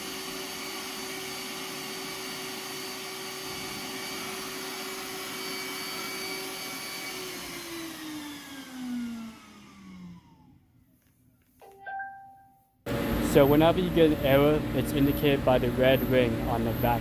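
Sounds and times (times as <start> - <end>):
robot vacuum motor whining: 0.0 - 10.6.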